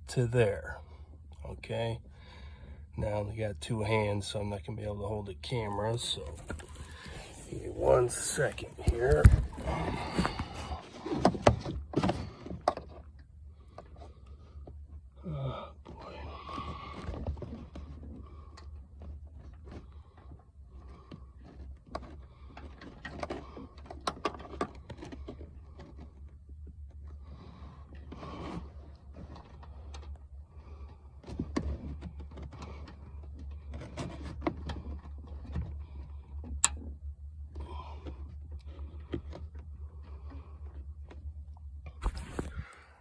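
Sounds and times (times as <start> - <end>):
hands rustling and scraping wiring: 5.9 - 11.4, 42.0 - 43.0.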